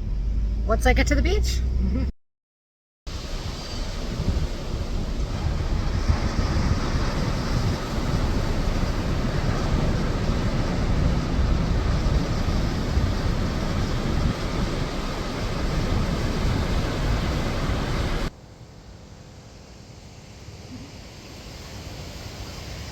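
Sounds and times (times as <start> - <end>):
heavy low rumble: 0.0 - 2.1
wind buffeting microphone: 3.1 - 18.3.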